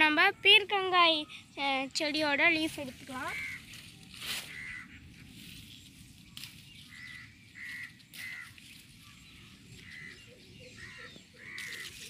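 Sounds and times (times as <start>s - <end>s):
bird calling: 3.0s - 5.3s, 6.4s - 12.0s.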